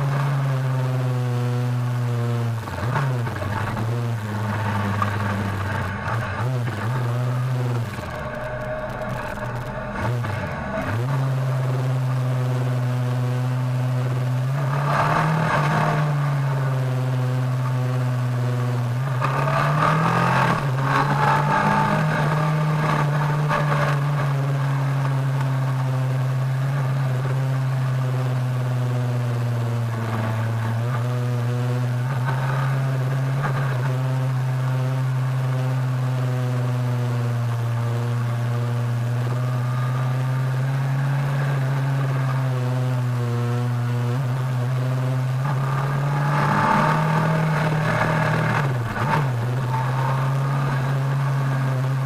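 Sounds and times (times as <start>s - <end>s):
motorcycle engine cruising: 0.0s - 52.0s
rushing noise: 2.6s - 13.1s.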